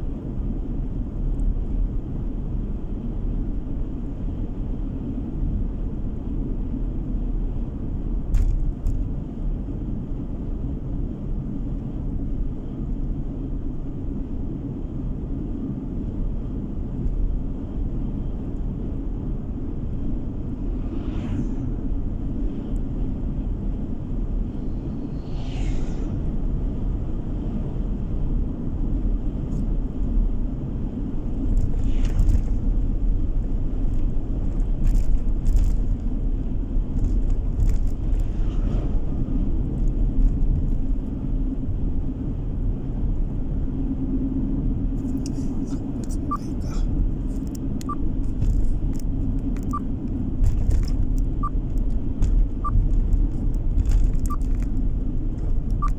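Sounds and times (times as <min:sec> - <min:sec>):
car road and engine rumble: 0:00.0 - 0:55.9
brief whooshes: 0:20.6 - 0:21.9, 0:24.6 - 0:26.5.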